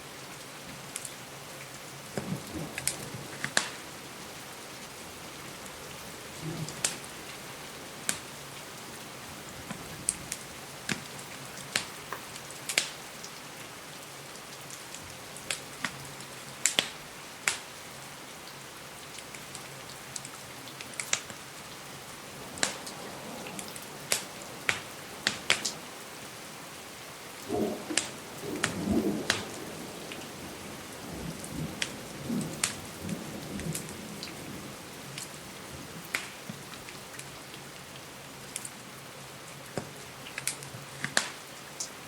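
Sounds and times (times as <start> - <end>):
rain hiss: 0.0 - 42.0
wood fire crackling and popping: 2.1 - 3.8, 5.6 - 7.4, 8.0 - 8.3, 9.6 - 13.0, 15.0 - 16.0, 16.6 - 17.7, 20.2 - 21.4, 22.5 - 25.8, 27.4 - 30.2, 31.4 - 34.3, 36.1 - 37.3, 39.7 - 41.4
thunder rumble: 2.2 - 4.0, 5.3 - 8.2, 22.1 - 26.0, 27.4 - 34.8.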